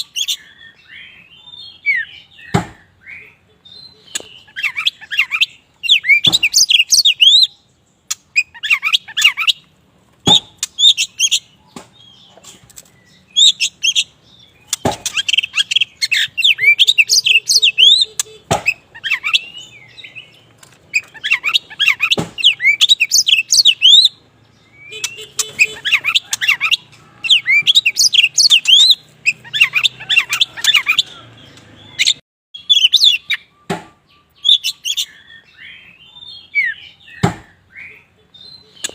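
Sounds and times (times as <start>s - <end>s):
songbird whistled phrases: 0.0s - 7.6s, 15.1s - 20.2s, 21.0s - 24.2s, 24.8s - 31.2s, 31.9s - 38.8s.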